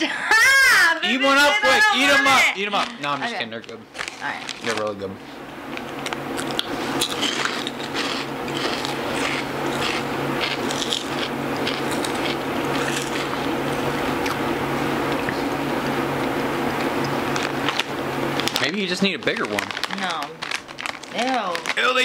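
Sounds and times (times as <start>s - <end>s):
steady low hum: 0.0s - 22.0s
pork rinds crunching: 6.0s - 14.4s, 17.3s - 22.0s.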